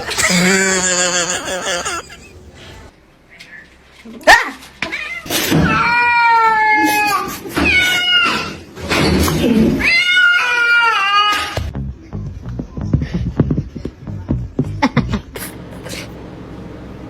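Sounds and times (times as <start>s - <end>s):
cat yowling: 0.0s - 2.2s.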